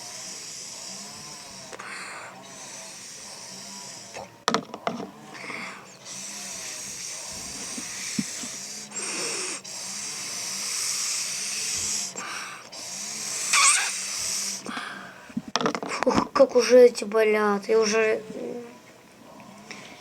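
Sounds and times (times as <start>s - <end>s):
breathy hissing puffs: 0.0s - 4.4s, 5.2s - 16.2s.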